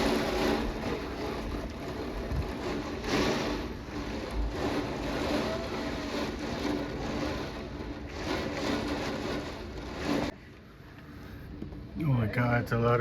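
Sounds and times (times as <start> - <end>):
heavy rain: 0.0 - 10.4
gusting wind: 0.0 - 10.5
low bumps: 0.0 - 10.5.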